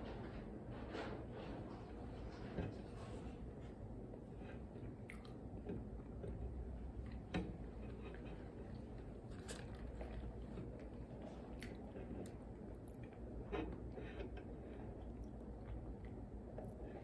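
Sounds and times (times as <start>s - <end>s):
person chewing food: 4.1s - 17.0s
wet mouth clicks: 5.1s - 5.4s.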